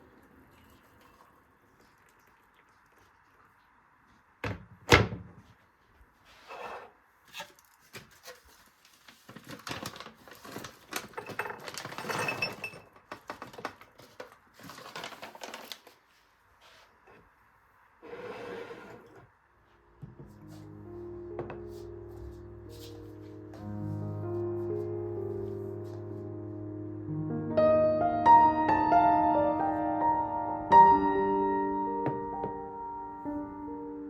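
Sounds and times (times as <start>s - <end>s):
rustling: 6.2s - 17.1s
objects clattering: 6.6s - 16.0s.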